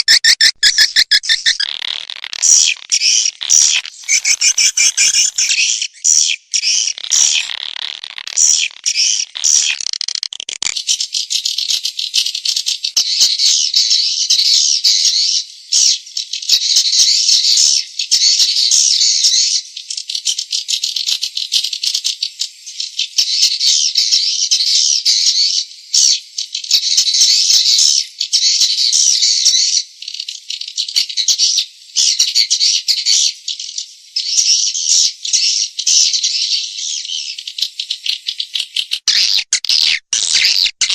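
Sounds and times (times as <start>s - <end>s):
swiftlets chirping: 0.0s - 1.7s, 2.4s - 5.8s.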